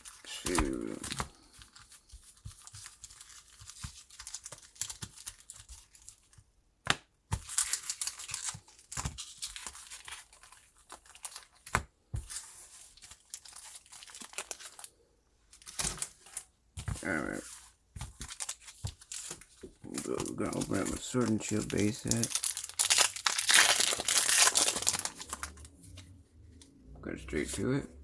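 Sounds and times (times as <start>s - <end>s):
foil wrapper crinkling and tearing: 0.0s - 6.3s, 7.4s - 11.8s, 12.8s - 15.0s, 18.1s - 26.0s.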